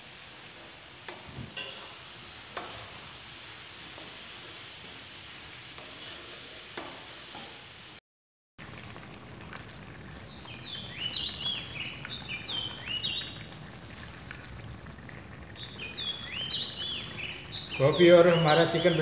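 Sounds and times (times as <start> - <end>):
curry simmering in a pan: 0.0 - 8.0, 8.6 - 19.0
bird chirping: 10.4 - 13.5, 15.6 - 19.0.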